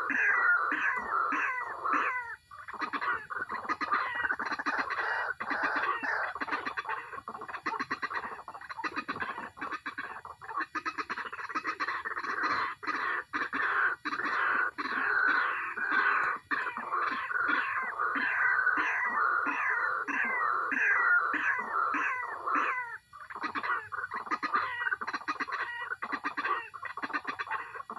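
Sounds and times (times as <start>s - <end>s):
waterhen calling: 0.0s - 27.9s.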